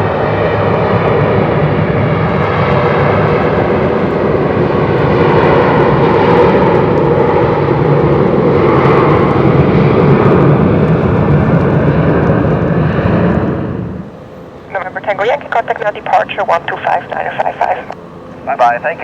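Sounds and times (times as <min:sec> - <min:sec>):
jet engines at takeoff thrust: 0:00.0 - 0:19.0.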